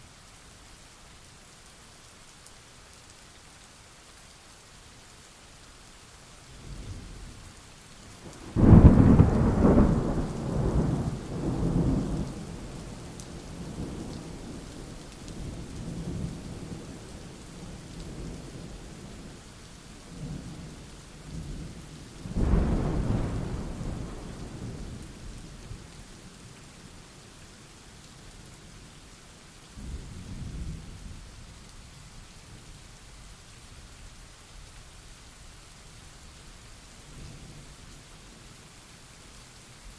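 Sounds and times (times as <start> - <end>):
steady rain: 0.0 - 39.9
thunder rolling: 22.4 - 24.9.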